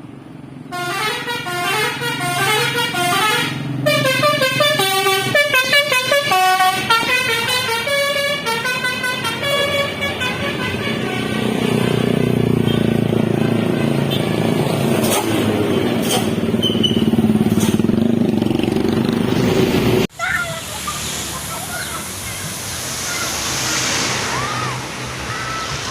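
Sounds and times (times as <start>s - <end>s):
bus engine and road noise: 0.0s - 25.9s
musical bus horn playing a tune: 0.7s - 12.1s, 12.7s - 15.3s.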